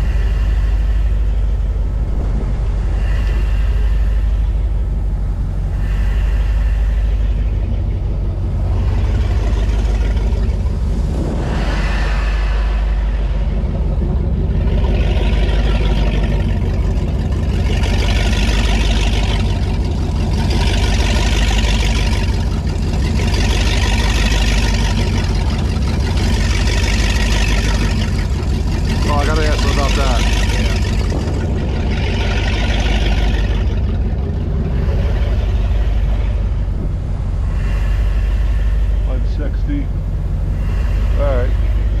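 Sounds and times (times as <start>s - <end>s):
boat engine rumbling: 0.0s - 42.0s
hiss: 2.8s - 7.8s, 8.6s - 16.4s, 37.4s - 42.0s.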